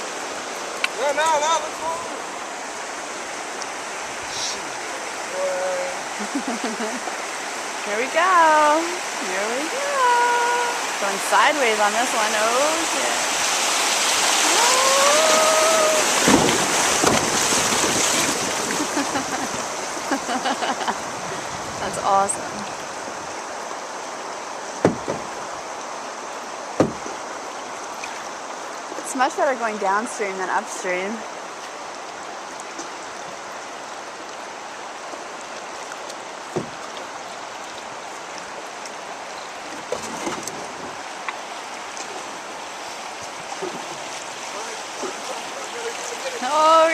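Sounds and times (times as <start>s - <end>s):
river rapids rushing: 0.0s - 46.9s
water splashes: 0.0s - 46.9s
person yelling: 9.7s - 10.8s, 14.4s - 16.2s
knocks on canoe: 16.2s - 19.6s, 24.8s - 25.4s, 26.8s - 27.2s, 36.5s - 37.0s
knocks: 24.8s - 25.3s, 26.8s - 27.2s.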